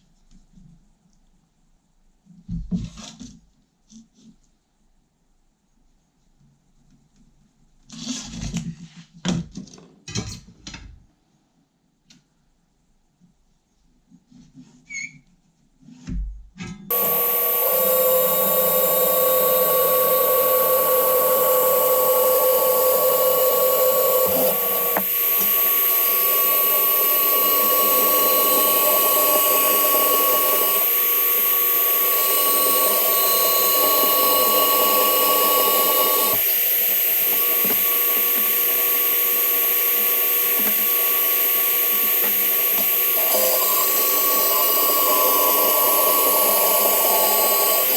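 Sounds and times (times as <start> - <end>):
electric power tool whining: 16.9 - 47.9.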